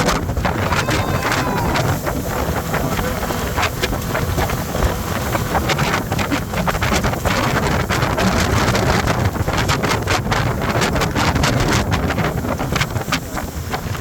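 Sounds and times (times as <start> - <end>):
speedboat engine running: 0.0 - 14.0
wind buffeting microphone: 0.0 - 14.0.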